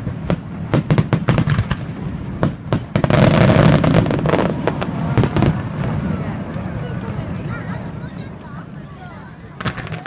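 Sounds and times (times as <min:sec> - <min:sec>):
fireworks bangs: 0:00.0 - 0:10.0
fireworks crackle: 0:00.0 - 0:10.0.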